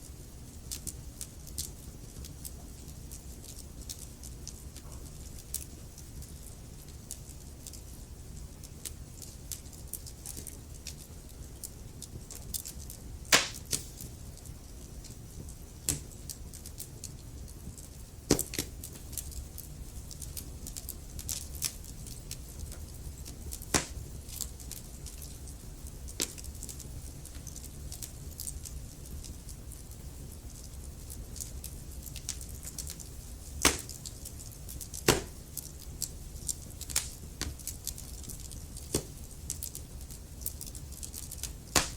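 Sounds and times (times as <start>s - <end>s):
logs crackling in fireplace: 0.0s - 41.9s
sharp fire pops: 13.2s - 14.2s, 23.5s - 24.4s, 26.1s - 26.8s, 32.2s - 34.2s, 34.8s - 35.9s, 36.8s - 37.6s, 41.4s - 41.9s.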